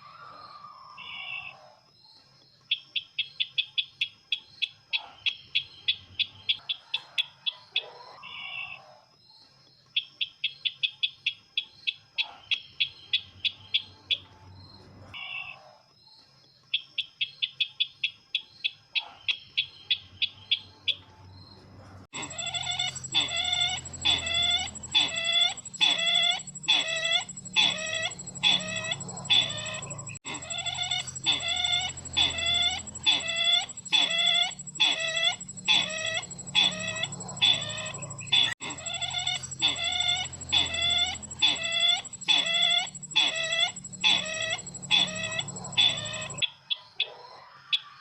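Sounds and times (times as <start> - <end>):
high electronic whine: 22.1 - 46.4
clucking bird calls: 22.1 - 48.0.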